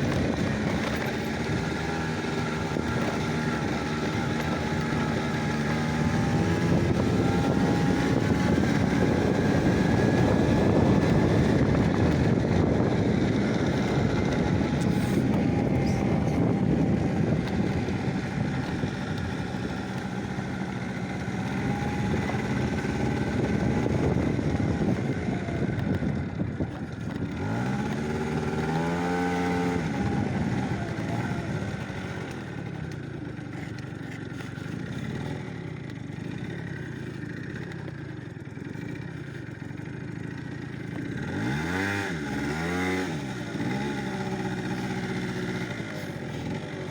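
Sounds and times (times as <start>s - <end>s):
vehicle engine rumbling: 0.0s - 46.9s.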